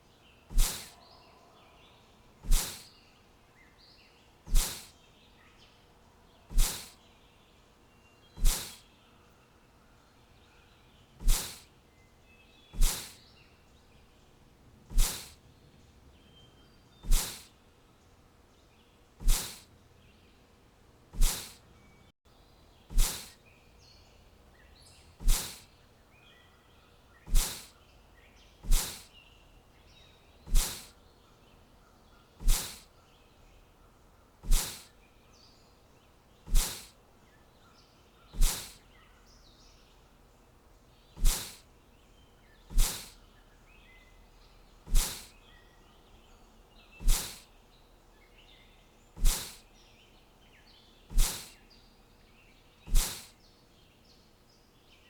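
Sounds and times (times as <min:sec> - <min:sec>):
faint high bird chirps: 0:00.0 - 0:20.6, 0:21.2 - 0:55.0
sharp whoosh: 0:27.3 - 0:27.7.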